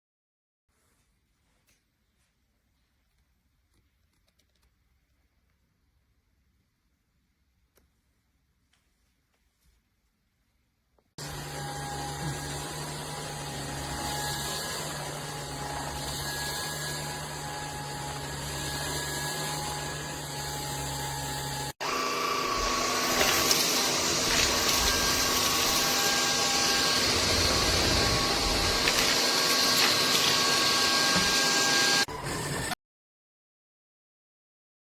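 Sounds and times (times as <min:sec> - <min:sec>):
stick vacuum cleaner running: 0:11.2 - 0:32.8.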